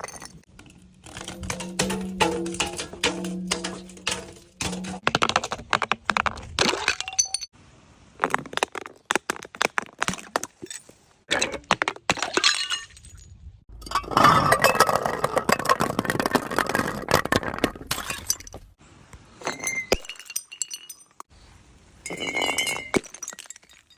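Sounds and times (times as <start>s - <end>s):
glass shards clinking: 0.0s - 5.0s, 19.4s - 21.3s, 22.1s - 23.9s
glass bottles breaking: 0.0s - 5.1s, 6.6s - 7.5s, 10.7s - 13.2s, 13.8s - 18.7s, 19.4s - 21.3s, 22.1s - 23.9s.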